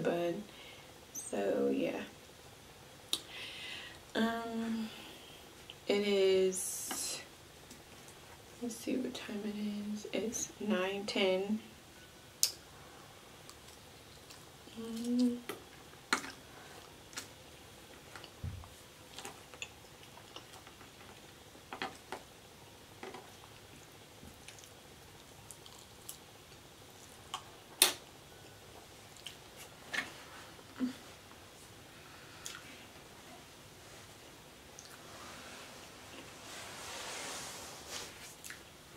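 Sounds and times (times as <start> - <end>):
chewing fries: 13.4 - 27.7
person humming: 14.7 - 15.5.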